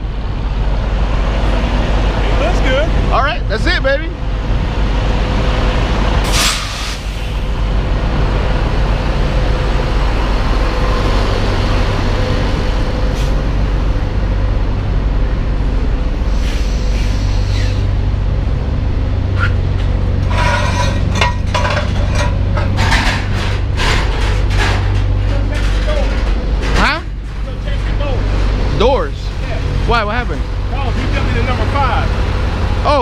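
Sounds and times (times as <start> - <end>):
diesel engine idling: 0.0 - 33.0
air brake hiss: 6.2 - 7.5, 16.3 - 17.9.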